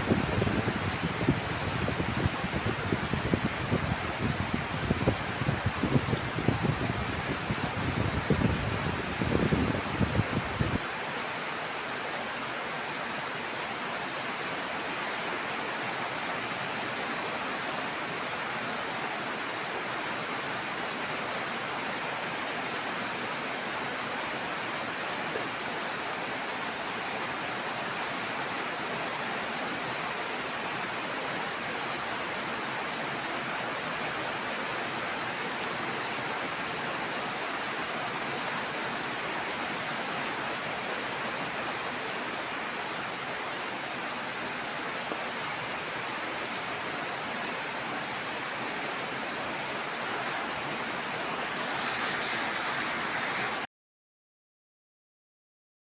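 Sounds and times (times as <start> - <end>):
heavy rain falling: 0.0 - 53.7.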